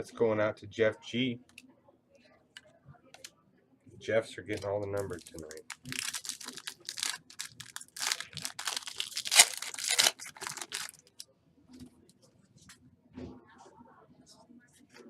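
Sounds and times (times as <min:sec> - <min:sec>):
foil wrapper tearing and crinkling: 0:05.0 - 0:11.2.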